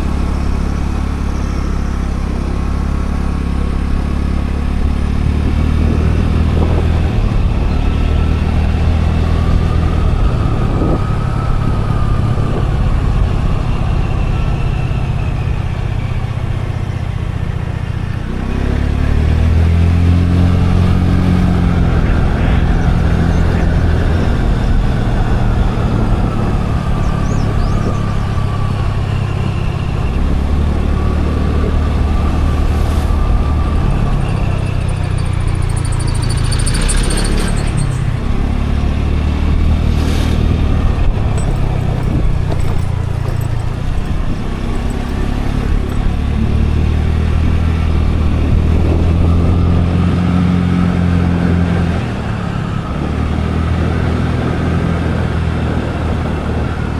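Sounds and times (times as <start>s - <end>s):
scooter engine running: 0.0s - 39.7s, 40.8s - 49.6s
road and wind rumble: 0.0s - 56.9s
high-pitched whine: 20.4s - 42.6s.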